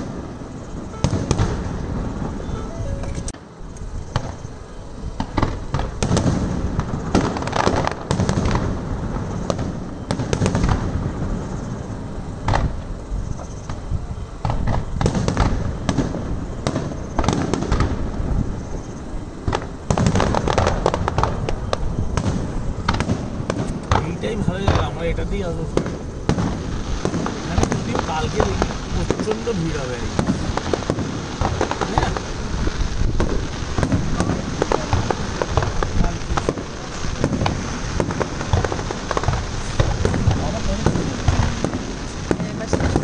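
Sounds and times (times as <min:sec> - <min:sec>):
fireworks launching and bursting: 0:00.0 - 0:43.0.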